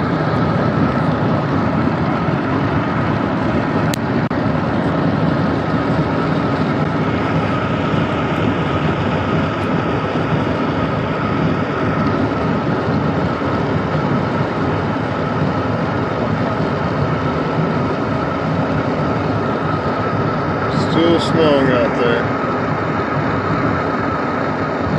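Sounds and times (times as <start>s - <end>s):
car engine hum: 0.0s - 24.9s
faint steady whine: 0.0s - 24.9s.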